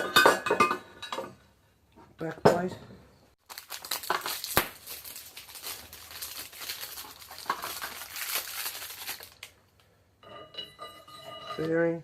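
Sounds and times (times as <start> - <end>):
crinkling rustling handling noise: 3.4 - 10.0.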